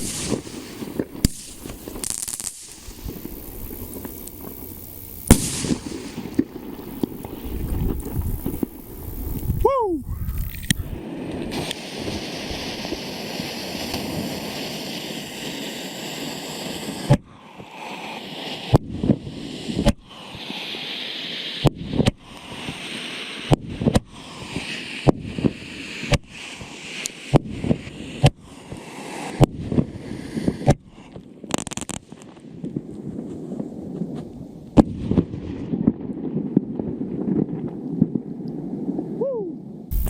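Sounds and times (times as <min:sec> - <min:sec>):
firework bangs: 0:00.0 - 0:09.6, 0:10.9 - 0:17.2
firework hissing: 0:00.0 - 0:32.3.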